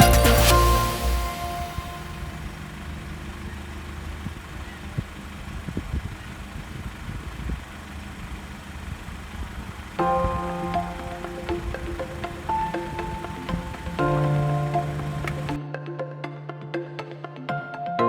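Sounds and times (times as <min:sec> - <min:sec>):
background music: 0:00.0 - 0:02.5, 0:10.0 - 0:18.0
car engine idling: 0:00.0 - 0:15.6.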